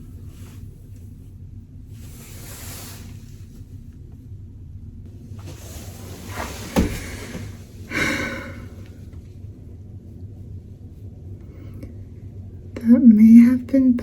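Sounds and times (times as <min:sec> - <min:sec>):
woman sighing heavily: 0:07.9 - 0:08.8.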